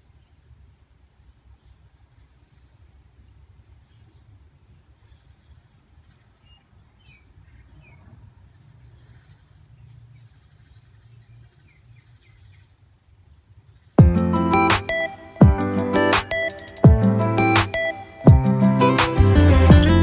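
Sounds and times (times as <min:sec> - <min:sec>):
faint bird chirps: 0:00.0 - 0:14.1.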